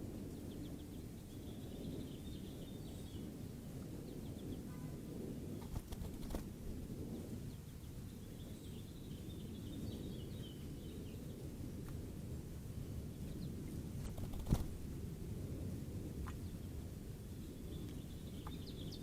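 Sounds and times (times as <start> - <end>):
low outdoor rumble: 11.3 - 19.0.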